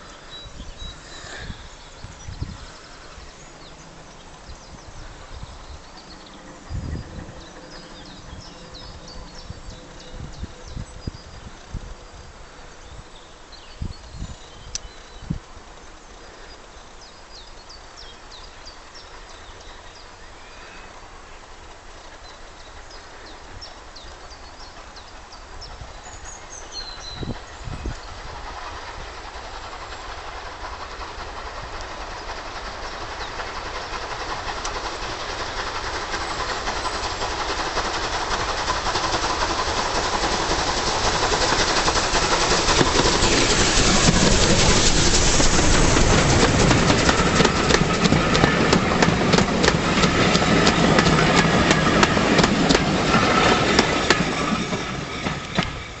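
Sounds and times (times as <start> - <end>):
steam locomotive passing: 0.0 - 56.0
wheels clacking over rail joints: 28.4 - 56.0.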